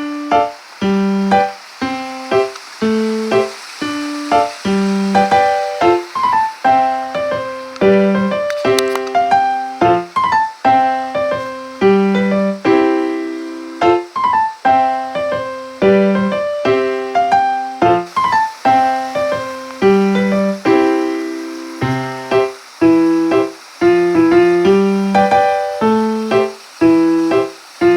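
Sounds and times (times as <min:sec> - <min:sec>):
gentle piano phrase: 0:00.0 - 0:27.9.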